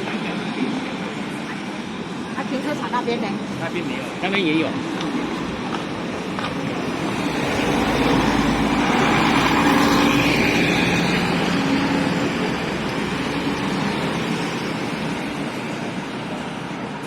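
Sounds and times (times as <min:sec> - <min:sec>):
vehicle driving past: 0:05.3 - 0:16.2.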